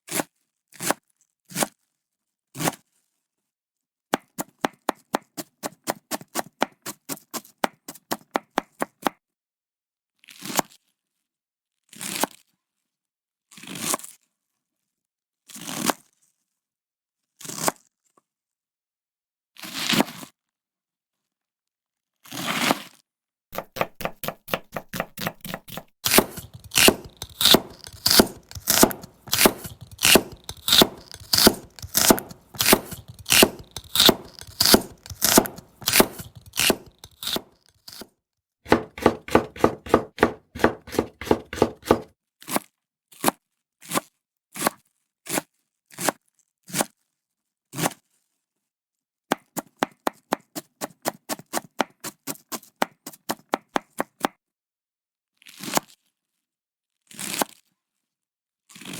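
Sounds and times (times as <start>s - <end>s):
knife chopping on cutting board: 4.2s - 9.1s, 23.6s - 38.0s, 38.7s - 42.1s, 49.3s - 54.3s.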